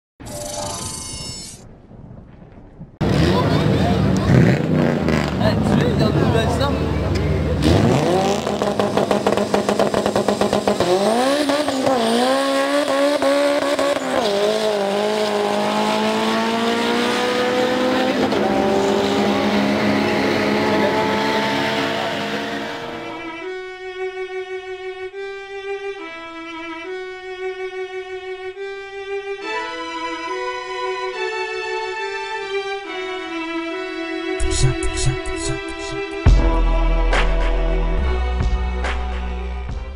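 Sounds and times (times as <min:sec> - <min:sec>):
car engine revving on drag strip: 0:03.0 - 0:23.4
bowed string music: 0:16.4 - 0:39.6.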